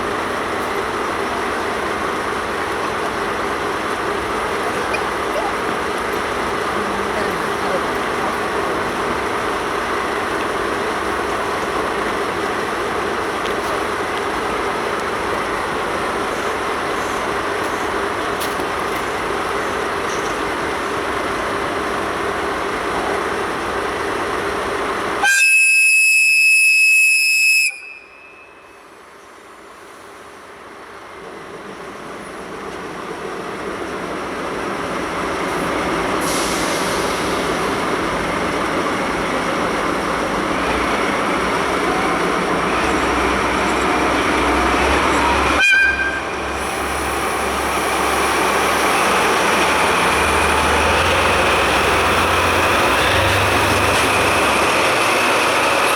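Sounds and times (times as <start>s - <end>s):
diesel engines rumbling: 0.0s - 28.1s, 28.8s - 55.9s
train rumbling: 0.0s - 55.9s
locomotive horn blast: 25.2s - 28.8s, 45.4s - 46.8s.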